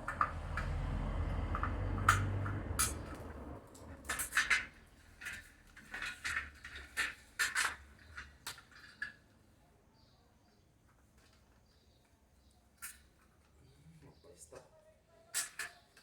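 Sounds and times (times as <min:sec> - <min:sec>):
tools and hard parts clattering: 0:01.5 - 0:09.2.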